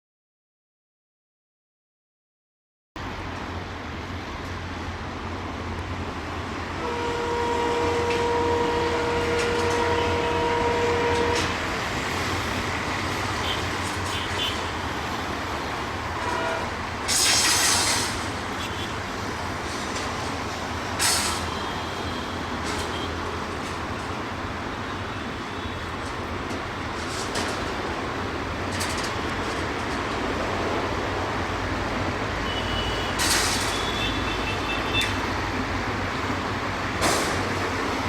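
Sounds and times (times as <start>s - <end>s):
train rumbling along track: 3.0s - 38.0s
locomotive horn: 6.7s - 12.1s, 13.3s - 15.1s, 16.0s - 16.9s, 21.2s - 23.8s, 32.3s - 35.4s
loud hiss burst: 17.1s - 18.4s.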